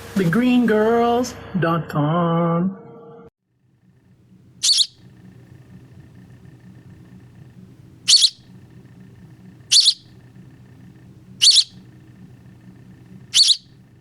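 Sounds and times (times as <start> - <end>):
nestling bird chirping: 4.6 - 5.0, 8.1 - 8.5, 9.7 - 10.2, 11.3 - 12.0, 12.7 - 13.8.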